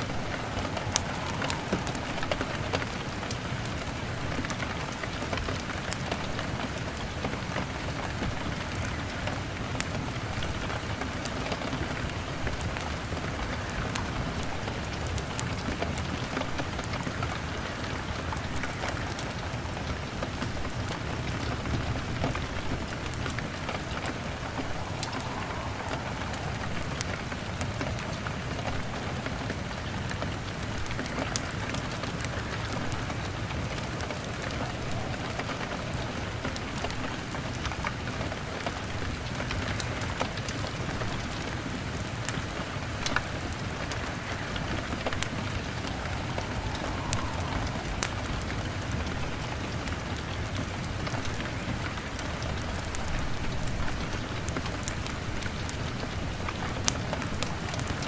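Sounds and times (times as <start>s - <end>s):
rain on window glass: 0.0s - 58.0s
wood fire crackling: 0.0s - 58.0s.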